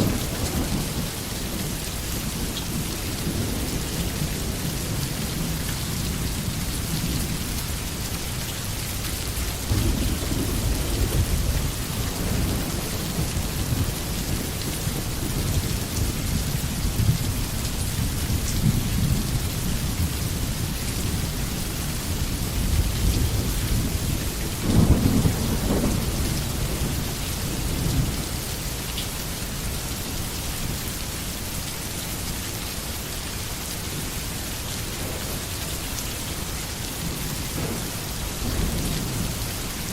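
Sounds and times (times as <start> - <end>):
distant thunder rumbling: 0.0 - 7.6, 9.5 - 21.6, 22.2 - 28.4, 37.0 - 39.9
steady rain falling: 0.0 - 39.9.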